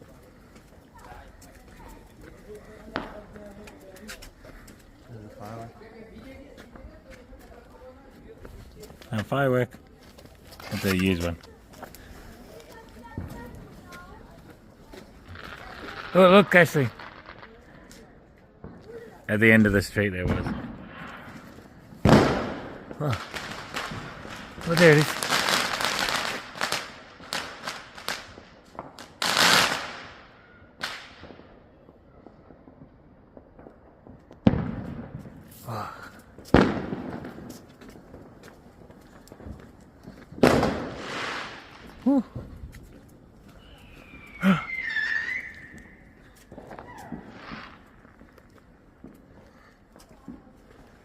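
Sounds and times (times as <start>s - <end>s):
fireworks banging: 0.6s - 4.4s, 10.6s - 17.8s, 19.7s - 31.5s, 32.7s - 49.6s
fireworks crackling burst: 15.0s - 17.8s, 19.8s - 31.2s, 34.4s - 42.5s, 43.4s - 49.7s.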